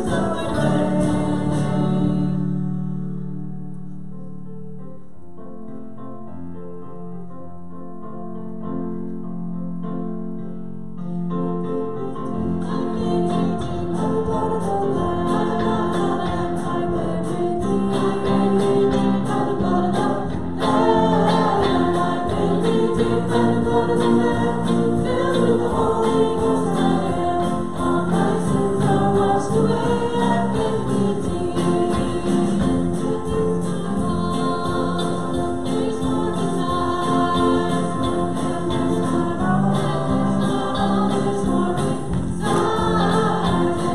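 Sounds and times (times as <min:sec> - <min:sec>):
congregation singing: 0:00.0 - 0:03.0, 0:12.2 - 0:43.9
guitar playing: 0:00.0 - 0:04.1, 0:12.0 - 0:43.9.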